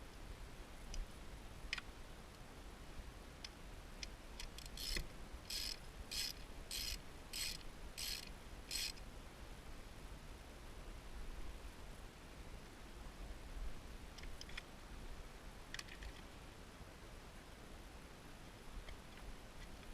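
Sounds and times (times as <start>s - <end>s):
ratchet wrench clicking: 4.4s - 9.0s.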